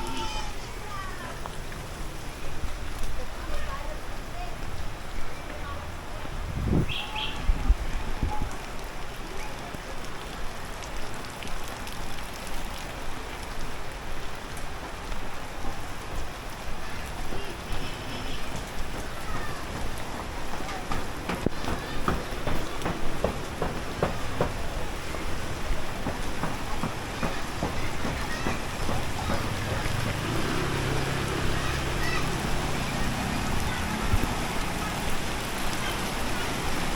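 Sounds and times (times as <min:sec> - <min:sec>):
raindrops ticking on surfaces: 0:00.0 - 0:36.9
steady rain falling: 0:00.0 - 0:36.9
sharp taps and drips: 0:06.9 - 0:15.3, 0:17.2 - 0:36.9
vehicle engine humming: 0:26.5 - 0:36.6.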